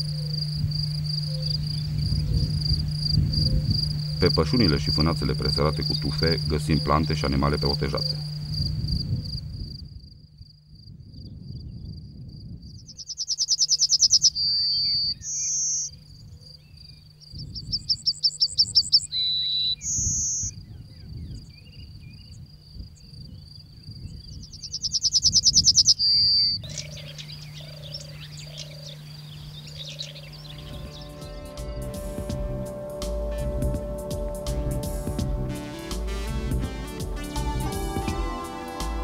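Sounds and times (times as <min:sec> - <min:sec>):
low falling bird calls: 0:00.0 - 0:08.4, 0:24.3 - 0:36.2
insect trill: 0:00.0 - 0:37.2
high bird chirps: 0:12.8 - 0:16.0, 0:17.4 - 0:20.6, 0:24.3 - 0:36.1
loud bird song with whistles: 0:12.8 - 0:16.0, 0:16.6 - 0:22.4, 0:24.1 - 0:31.8.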